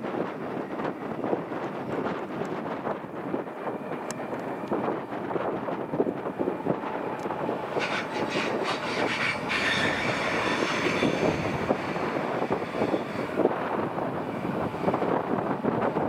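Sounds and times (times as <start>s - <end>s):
train wheels rumbling and clattering: 0.0s - 16.0s
high wheel squeal: 7.7s - 13.6s.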